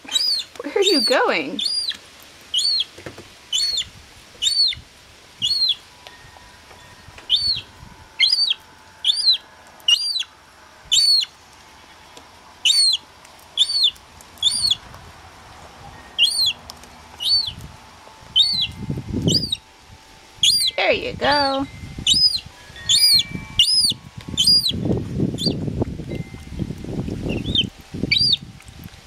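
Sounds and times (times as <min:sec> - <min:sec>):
gull chick peeping: 0:00.1 - 0:02.9, 0:03.5 - 0:04.8, 0:05.4 - 0:05.8, 0:07.3 - 0:10.3, 0:10.9 - 0:11.3, 0:12.6 - 0:13.0, 0:13.6 - 0:14.8, 0:16.2 - 0:16.6, 0:17.2 - 0:17.6, 0:18.4 - 0:19.7, 0:20.4 - 0:24.8, 0:25.4 - 0:25.6, 0:27.3 - 0:28.4.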